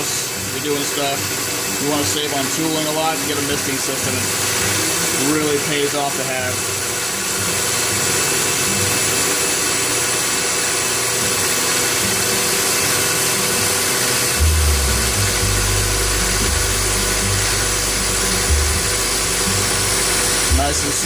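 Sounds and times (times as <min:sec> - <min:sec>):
air coolant mist hissing: 0:00.0 - 0:21.0
milling machine cutting: 0:00.0 - 0:21.0
deep low hum: 0:14.4 - 0:20.8.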